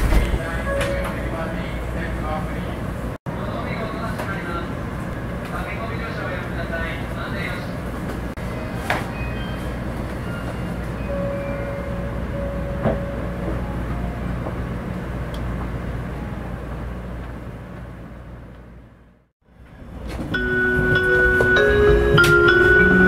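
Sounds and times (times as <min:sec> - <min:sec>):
train rumble and hiss: 0:00.0 - 0:23.0
announcement chime: 0:00.6 - 0:01.8, 0:08.4 - 0:14.0, 0:20.4 - 0:23.0.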